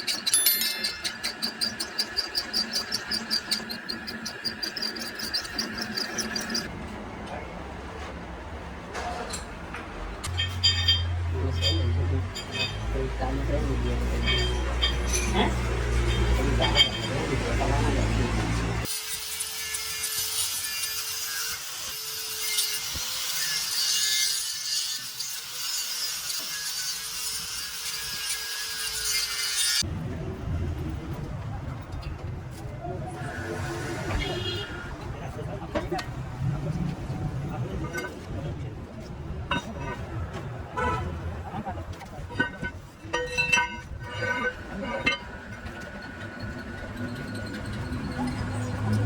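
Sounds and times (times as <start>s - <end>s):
hand tool scraping metal: 0.0s - 6.7s, 10.2s - 29.9s, 42.3s - 49.0s.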